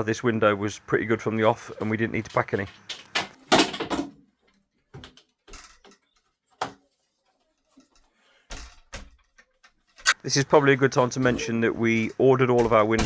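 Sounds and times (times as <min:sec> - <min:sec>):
clicks and knocks on window frame: 0:08.5 - 0:10.1.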